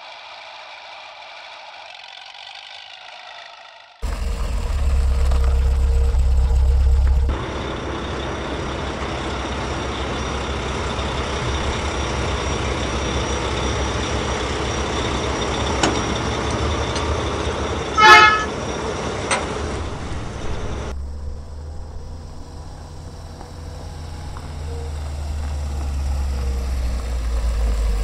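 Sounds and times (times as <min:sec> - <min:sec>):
vehicle horn toot: 0:18.0 - 0:18.6.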